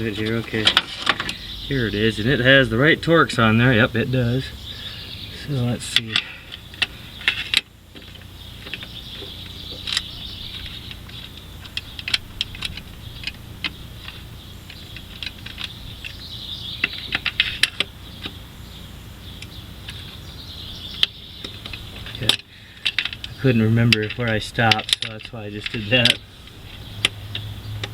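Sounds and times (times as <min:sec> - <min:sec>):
hand ratchet clicking: 0:05.8 - 0:16.2.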